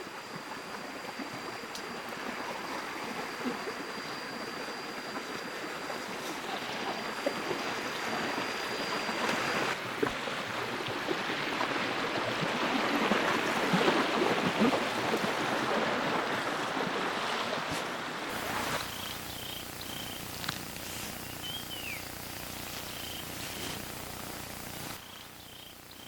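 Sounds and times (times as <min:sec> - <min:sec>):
stream water splashing: 0:05.7 - 0:20.5
thin high whine: 0:18.3 - 0:26.0.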